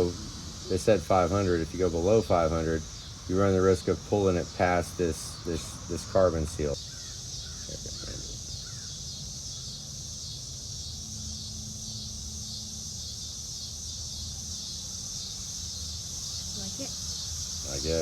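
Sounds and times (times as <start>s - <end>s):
low background rumble: 0.0s - 6.8s
pulsing insect chorus: 0.0s - 18.0s.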